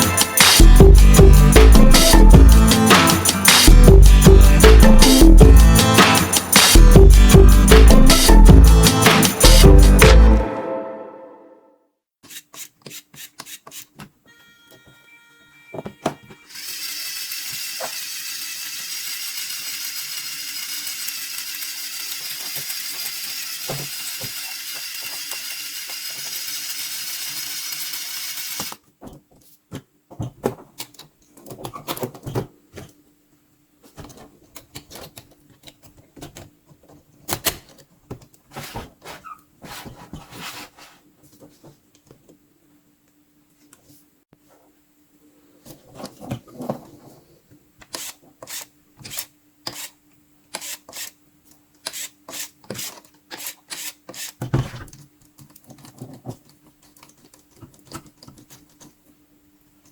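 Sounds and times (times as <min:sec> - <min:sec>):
plastic building bricks clicking: 0:16.6 - 0:28.8.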